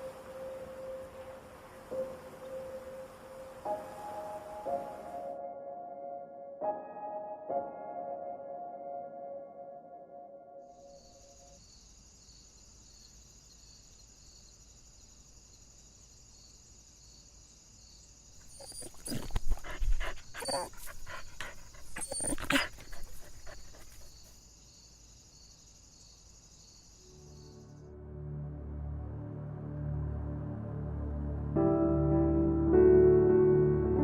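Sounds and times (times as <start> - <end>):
dog barking: 18.5 - 24.1.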